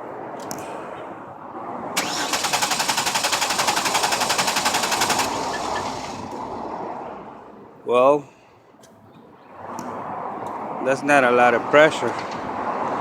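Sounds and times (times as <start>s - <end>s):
car engine cranking on starter: 2.0s - 6.5s.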